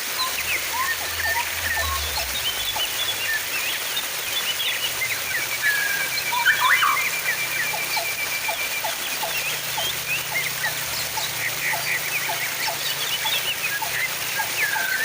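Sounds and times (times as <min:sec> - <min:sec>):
running water splashing: 0:00.0 - 0:15.0
small birds chirping: 0:00.0 - 0:15.0
bird trilling: 0:05.6 - 0:15.0.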